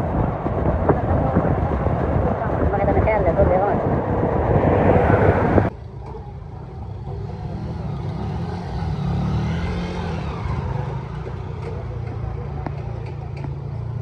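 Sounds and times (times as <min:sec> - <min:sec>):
loud noisy rumble: 0:00.0 - 0:05.8
vehicle engine rumble: 0:00.0 - 0:14.0.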